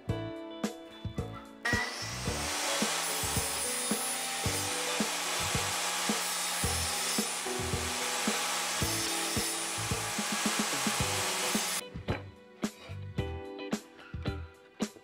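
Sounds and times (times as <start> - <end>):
guitar music: 0.0 - 15.0
table saw cutting plywood: 1.7 - 11.8.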